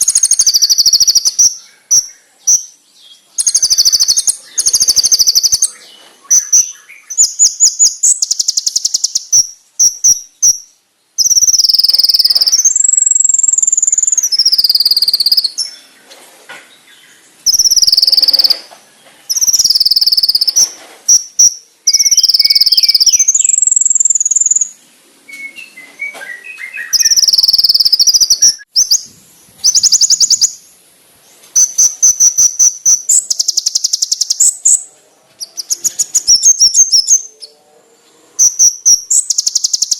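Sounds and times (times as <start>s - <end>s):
sunbird trills and whistles: 0.0s - 16.0s, 17.4s - 30.7s, 31.5s - 37.6s, 38.4s - 39.9s.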